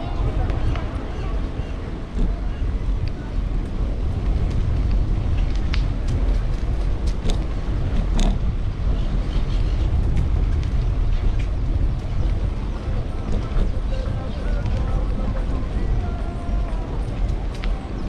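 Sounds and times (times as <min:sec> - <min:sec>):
city street traffic: 0:00.0 - 0:18.0
wind and road noise: 0:00.0 - 0:18.0
bicycle clicks and squeaks: 0:05.3 - 0:15.9.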